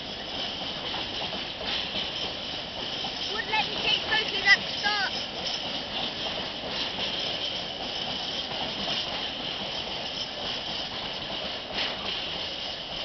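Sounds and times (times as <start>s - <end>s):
loud wheel clatter: 0.0s - 13.0s
train wagons rattling on rails: 0.0s - 13.0s.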